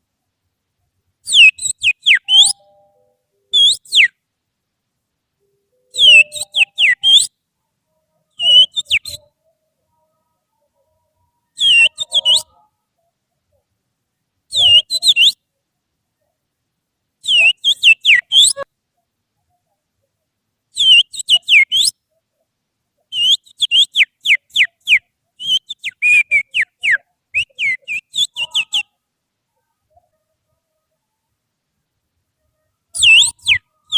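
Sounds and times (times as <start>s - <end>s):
finger whistling birdsong imitation: 1.3s - 4.2s, 5.7s - 7.4s, 8.3s - 10.7s, 11.5s - 12.7s, 14.5s - 15.4s, 17.2s - 18.7s, 20.8s - 22.0s, 23.1s - 28.9s, 33.0s - 33.9s.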